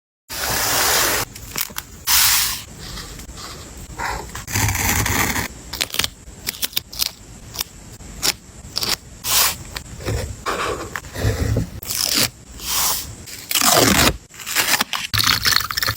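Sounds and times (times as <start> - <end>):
paper rustling and scraping: 0.4 - 5.5.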